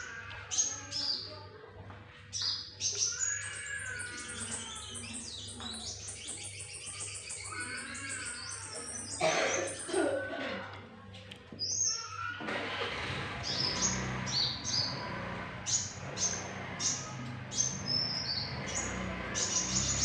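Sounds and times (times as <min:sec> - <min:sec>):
songbird singing: 0:02.3 - 0:10.1, 0:13.5 - 0:20.0.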